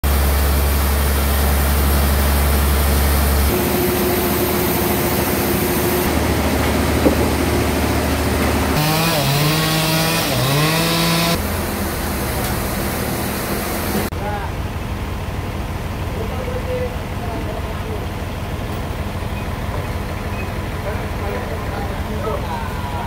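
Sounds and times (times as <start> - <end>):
saw machinery running: 0.0 - 23.0
chainsaw engine bogging down: 0.1 - 12.8.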